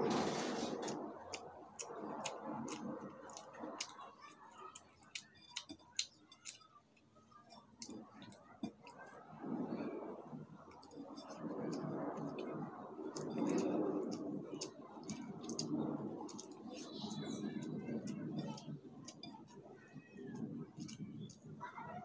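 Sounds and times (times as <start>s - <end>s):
chewing and wet mouth smacks: 0.8s - 9.2s, 10.7s - 19.6s
fingers squishing rice: 10.8s - 21.8s.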